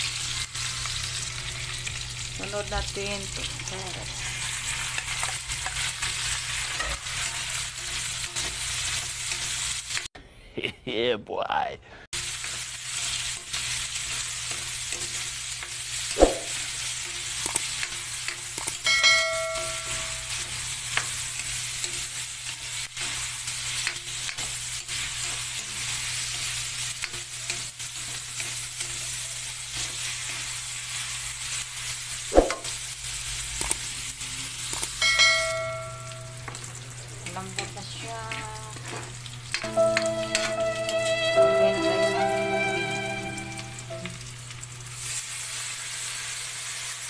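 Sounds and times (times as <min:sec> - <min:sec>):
vegetables sizzling in oil: 0:00.0 - 0:10.1, 0:12.2 - 0:47.0
utensil ringing on metal pan: 0:18.8 - 0:20.4, 0:35.0 - 0:36.4.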